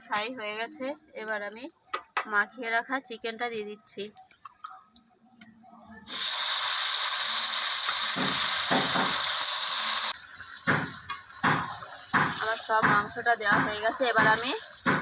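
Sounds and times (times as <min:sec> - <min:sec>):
chicken sizzling in hot oil: 0:06.1 - 0:15.0.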